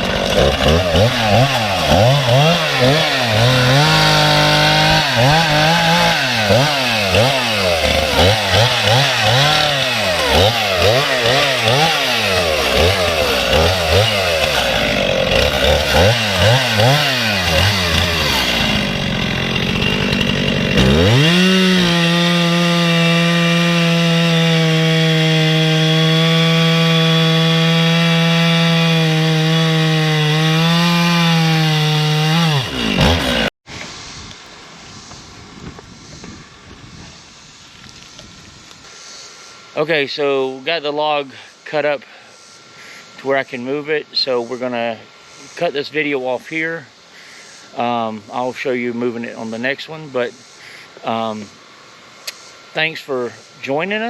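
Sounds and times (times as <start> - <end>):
chainsaw cutting log: 0.0 - 33.5.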